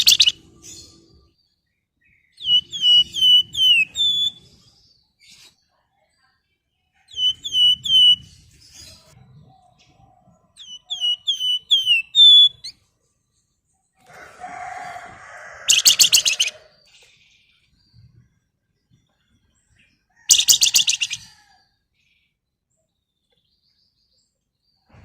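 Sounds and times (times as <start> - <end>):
songbird whistling: 0.0 - 0.8, 2.3 - 4.5, 7.2 - 8.3, 10.6 - 12.8, 15.6 - 16.7, 20.3 - 21.4
bird harsh rattling chatter: 15.6 - 16.6.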